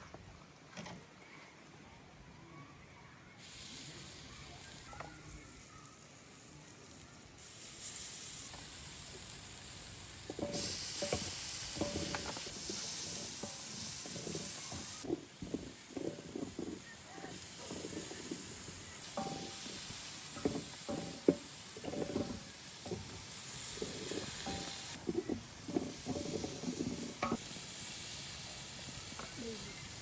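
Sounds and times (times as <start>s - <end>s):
food sizzling in hot oil: 3.4s - 30.0s
spoon stirring and scraping: 10.3s - 27.4s.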